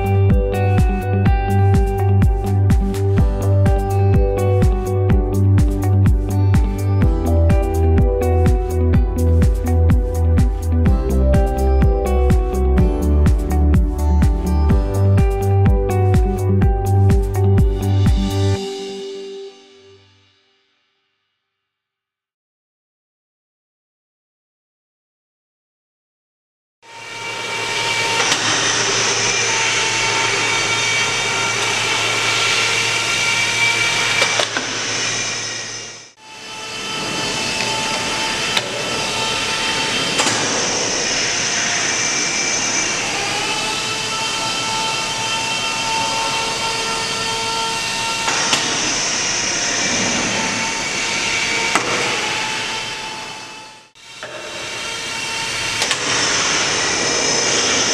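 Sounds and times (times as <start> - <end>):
high-speed spindle whining: 26.9 - 57.9.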